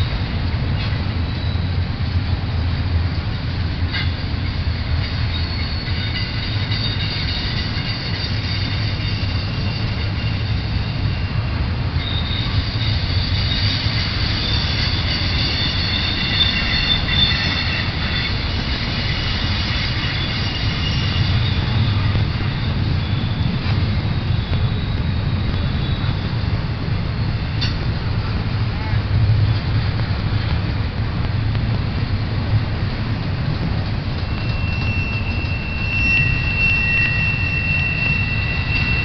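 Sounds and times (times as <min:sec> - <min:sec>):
high-pitched wheel squeal: 0:00.0 - 0:01.9, 0:03.8 - 0:27.9, 0:34.1 - 0:39.0
train cars rumbling past: 0:00.0 - 0:39.0.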